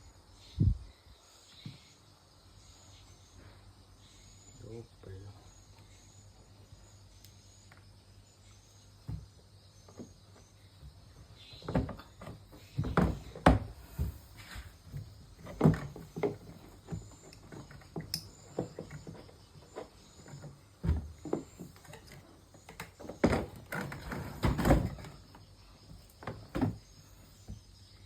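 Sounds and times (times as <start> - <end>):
parts knocking and clunking: 9.0 - 27.7.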